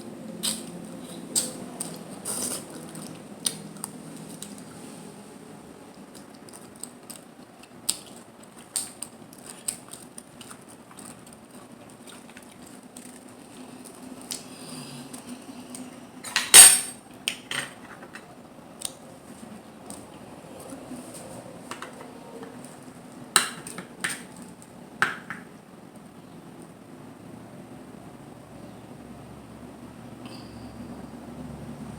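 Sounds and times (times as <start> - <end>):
cutlery against dishes: 16.2 - 18.3.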